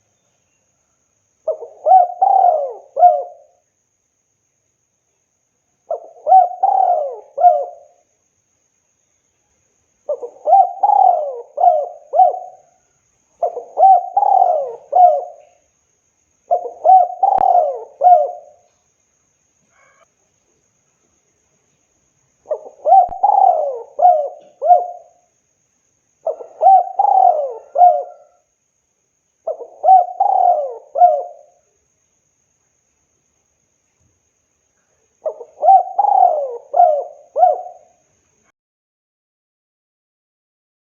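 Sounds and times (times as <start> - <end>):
dove cooing: 1.5 - 3.6, 5.9 - 8.0, 10.1 - 12.8, 13.4 - 15.6, 16.5 - 18.7, 22.5 - 25.2, 26.2 - 28.5, 29.4 - 31.6, 35.2 - 38.0.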